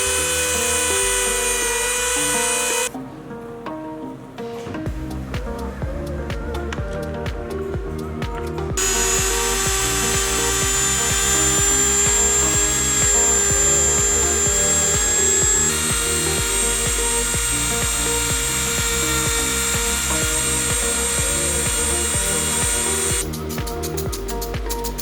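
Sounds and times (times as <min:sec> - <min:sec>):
power tool high whine: 0:00.0 - 0:02.9, 0:08.8 - 0:23.3
background music with beat: 0:00.0 - 0:25.0.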